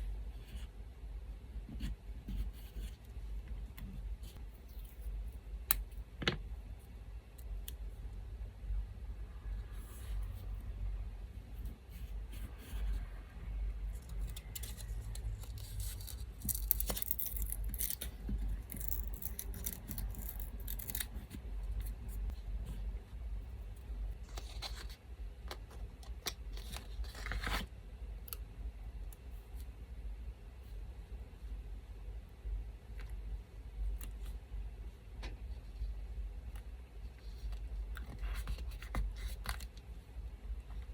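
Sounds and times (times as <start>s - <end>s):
scissors snipping paper: 14.2s - 21.2s.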